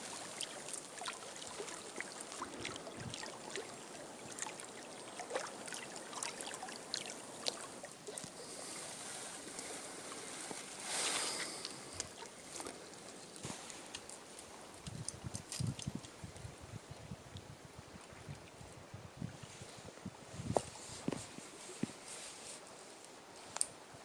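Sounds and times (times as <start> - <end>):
small splashes and drips: 0.0 - 8.5
water trickling and lapping: 0.0 - 19.8.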